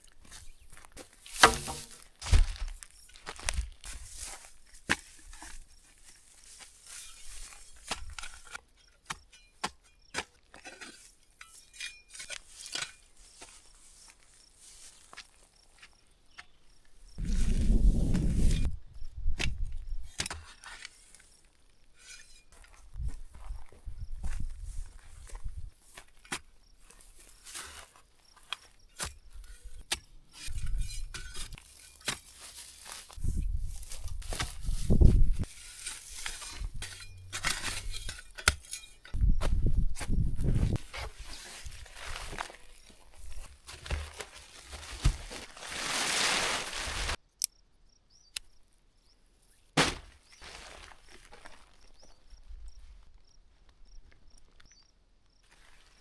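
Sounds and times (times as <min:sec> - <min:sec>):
wind buffeting microphone: 0:17.2 - 0:20.1, 0:33.2 - 0:35.4, 0:39.2 - 0:40.8.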